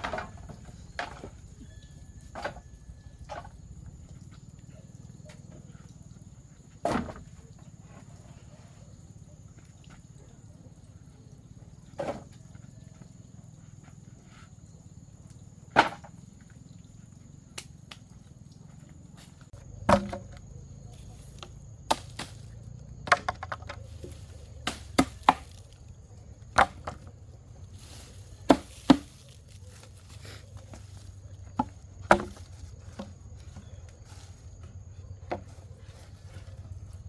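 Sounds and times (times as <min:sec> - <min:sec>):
chopping blows on wood: 0:24.7 - 0:25.7.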